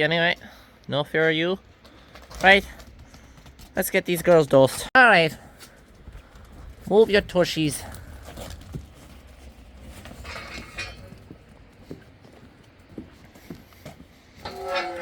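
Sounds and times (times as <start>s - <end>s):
sheep shuffling: 5.6s - 15.0s.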